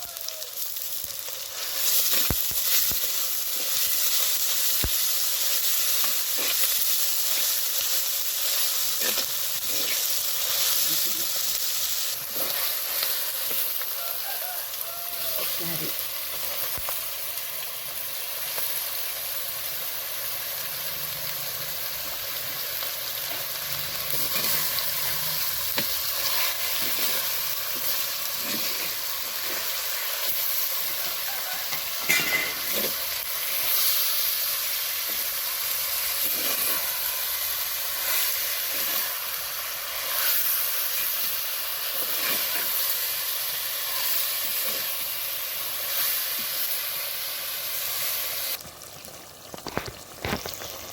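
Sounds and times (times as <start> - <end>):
chicken sizzling in hot oil: 0.0 - 50.9
spoon stirring and scraping pan: 3.5 - 10.7, 12.2 - 13.8, 23.3 - 30.9, 31.7 - 43.1.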